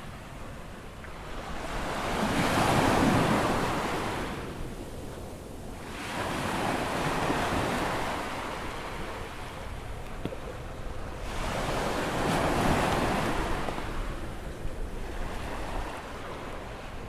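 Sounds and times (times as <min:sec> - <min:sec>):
ocean waves breaking: 0:05.8 - 0:17.0.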